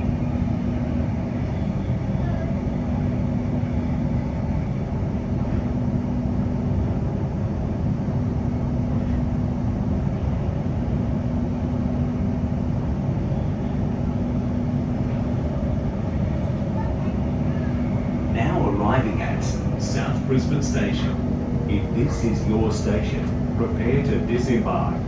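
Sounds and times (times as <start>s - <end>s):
low electric hum: 0.0s - 25.0s
train wheels rumbling on track: 0.0s - 25.0s.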